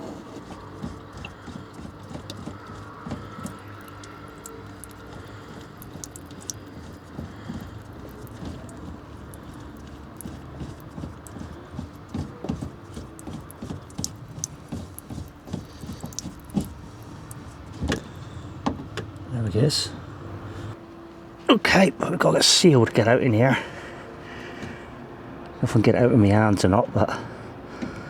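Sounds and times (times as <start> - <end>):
light clicks and knocks of plastic: 0.0 - 19.3.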